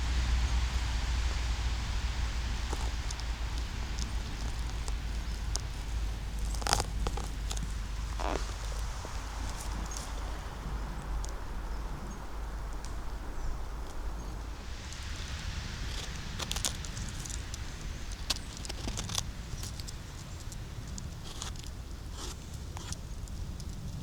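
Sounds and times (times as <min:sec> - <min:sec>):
steady low rumble: 0:00.0 - 0:21.2
leaves rustling: 0:00.0 - 0:24.0
twigs snapping underfoot: 0:01.3 - 0:23.8
footsteps on forest floor: 0:02.2 - 0:11.5.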